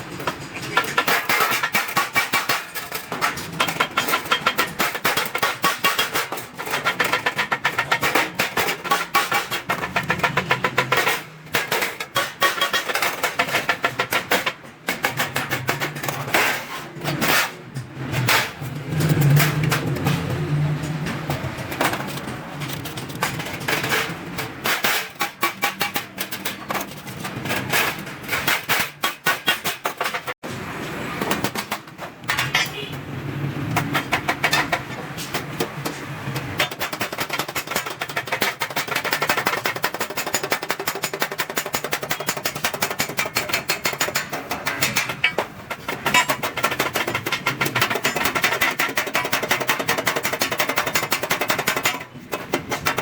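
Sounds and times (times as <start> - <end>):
sharp metal impacts on steel sheet: 0.0 - 30.4.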